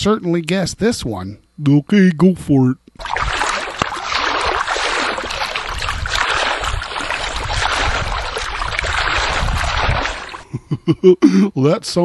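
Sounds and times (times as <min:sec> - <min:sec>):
water splashing and running: 0:03.0 - 0:10.4.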